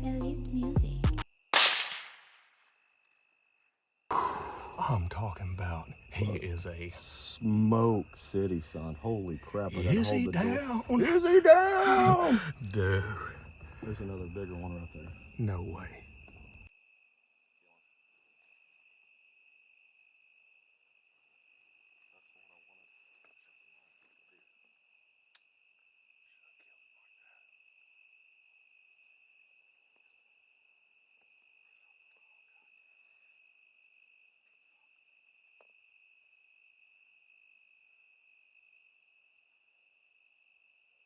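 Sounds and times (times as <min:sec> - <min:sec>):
crickets chirping: 0:00.3 - 0:41.0
sharp click: 0:01.6 - 0:02.3.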